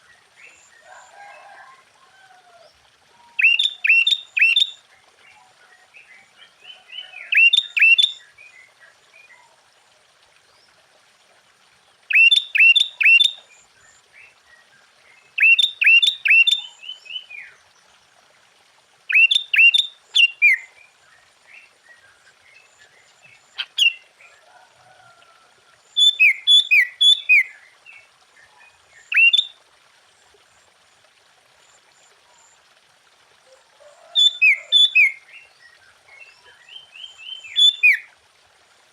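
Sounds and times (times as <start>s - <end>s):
bird whistled song phrases: 3.4s - 4.8s, 12.1s - 13.4s, 15.4s - 16.7s, 19.1s - 20.6s, 29.1s - 29.5s, 36.7s - 38.1s.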